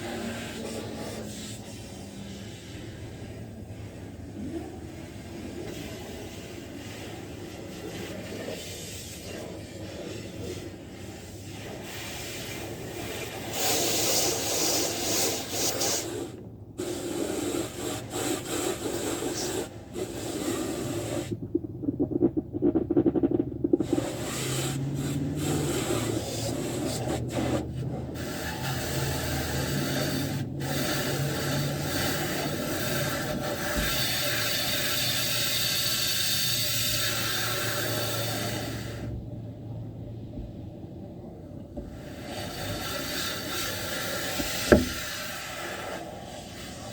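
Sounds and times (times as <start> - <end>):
car wash hissing and rubbing: 0.0 - 46.9
low hum: 21.0 - 25.4.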